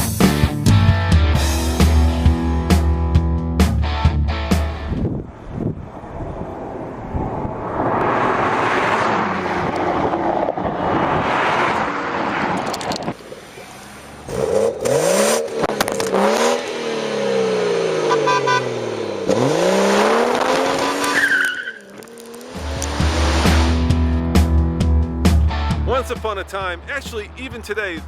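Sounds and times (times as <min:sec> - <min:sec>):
car engine revving: 0:13.4 - 0:27.0
car tyres squealing: 0:20.2 - 0:23.9.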